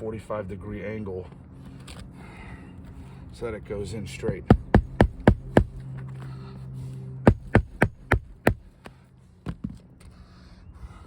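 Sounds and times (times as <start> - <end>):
hammer striking roofing nail: 4.5 - 5.8, 7.3 - 8.7.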